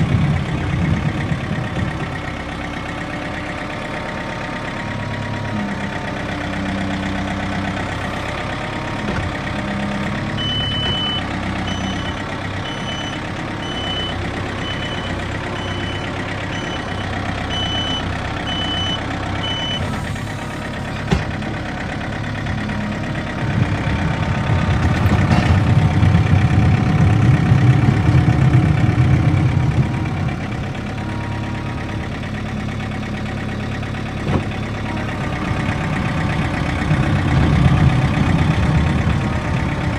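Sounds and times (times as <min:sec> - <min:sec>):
diesel engine running: 0:00.0 - 0:39.9
backup alarm beeping: 0:10.4 - 0:19.9.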